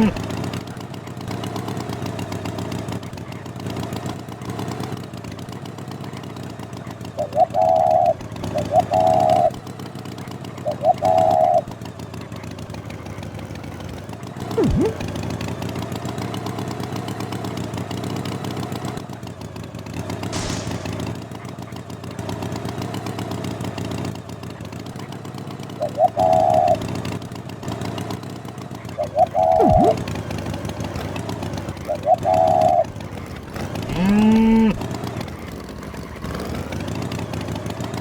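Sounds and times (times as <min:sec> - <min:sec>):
engine idling: 0:00.0 - 0:38.0
quick falling whistle: 0:14.6 - 0:15.1, 0:29.2 - 0:30.1
short high beeps: 0:29.6 - 0:30.0.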